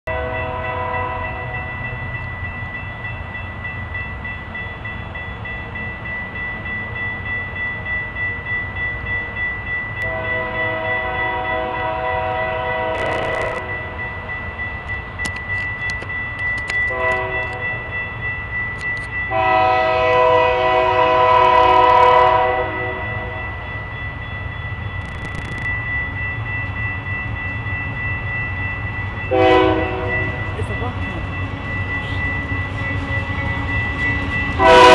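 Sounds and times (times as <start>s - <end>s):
locomotive air horn blasts: 0.1s - 1.5s, 10.0s - 13.7s, 16.9s - 17.6s, 19.3s - 23.4s, 29.3s - 30.3s, 34.6s - 34.9s
diesel locomotive rumbling: 0.1s - 34.9s
steady high ringing tone: 0.3s - 20.0s, 22.4s - 34.9s.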